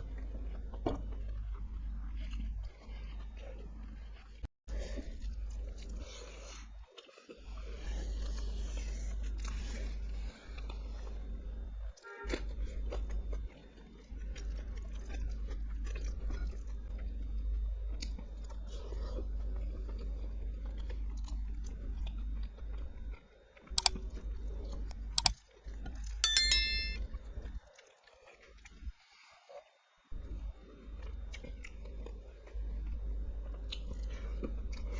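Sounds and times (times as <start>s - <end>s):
short ringing clink: 26.2s - 27.0s.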